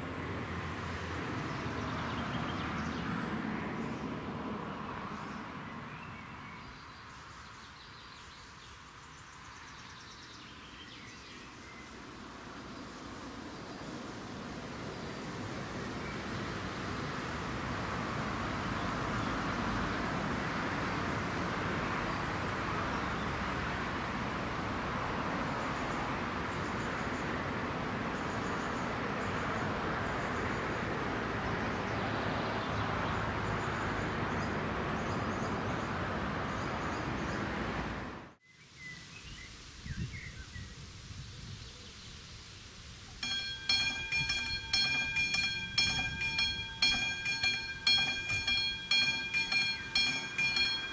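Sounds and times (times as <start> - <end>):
level crossing warning bell: 43.2 - 50.9
train rushing rumble: 43.2 - 50.9.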